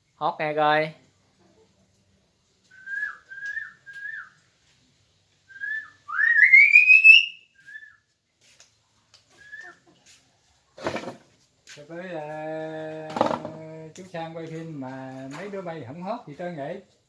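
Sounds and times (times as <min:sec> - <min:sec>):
person whistling: 0:05.6 - 0:08.0.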